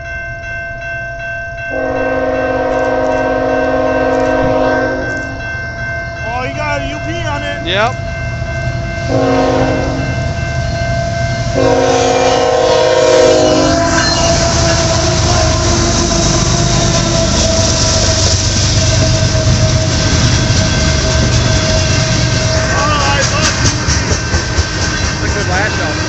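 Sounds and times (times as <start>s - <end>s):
train wheels rumbling on rails: 0.0s - 26.0s
locomotive air horn blasts: 1.7s - 5.4s, 9.1s - 10.2s, 11.5s - 20.1s.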